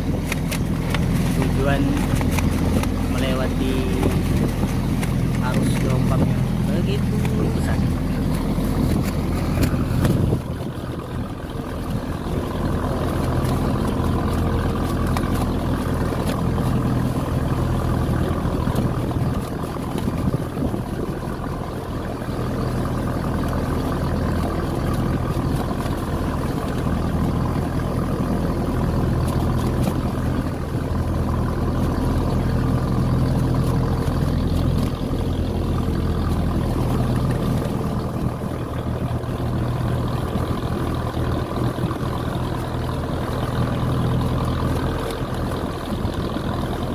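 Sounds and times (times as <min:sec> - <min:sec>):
motorboat engine humming: 0:00.0 - 0:46.9.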